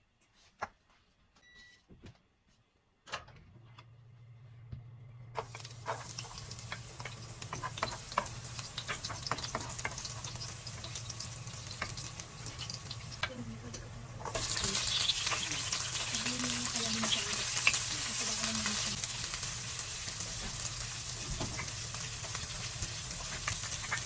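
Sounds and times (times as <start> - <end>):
low steady hum: 3.2 - 7.5
food sizzling in hot oil: 5.4 - 24.0.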